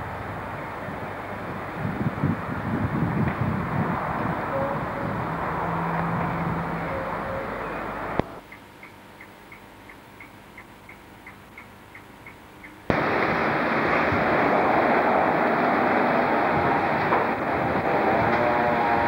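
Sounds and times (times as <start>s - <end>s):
outdoor rumble: 0.0s - 8.4s, 12.8s - 19.0s
train rushing into station: 0.0s - 8.4s, 12.9s - 19.0s
faint ticks: 8.2s - 12.9s.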